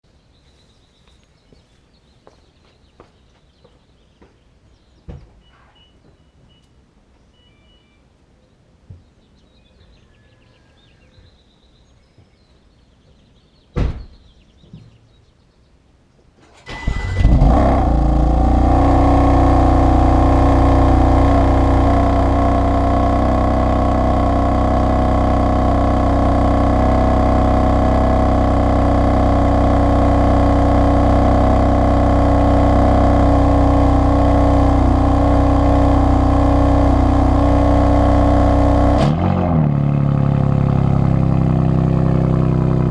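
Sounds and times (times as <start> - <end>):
car engine starting and idling: 16.4 - 42.9.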